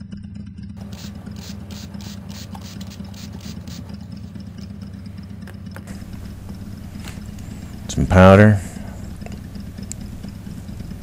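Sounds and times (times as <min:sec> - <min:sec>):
short hissing strokes: 0:00.8 - 0:04.0
orbital sander humming: 0:00.8 - 0:11.0.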